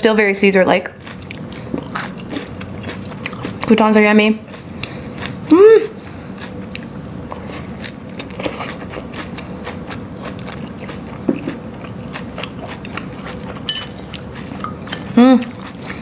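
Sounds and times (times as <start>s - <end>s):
chewing crunchy salad: 0.8s - 16.0s
person humming mm: 5.5s - 6.0s, 15.1s - 15.6s.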